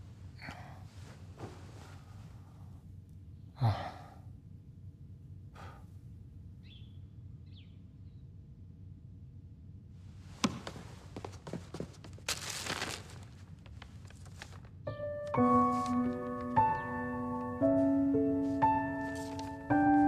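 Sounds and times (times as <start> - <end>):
steady low hum: 0.0 - 11.7
person sighing heavily: 3.6 - 4.2
soft breath: 5.5 - 6.1.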